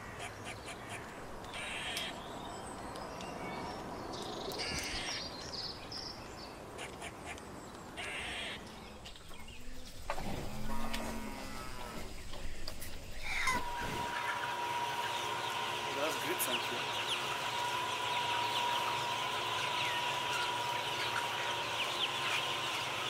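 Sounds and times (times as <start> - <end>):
harsh bird calls: 0.0 - 23.0
cow mooing: 10.4 - 12.2.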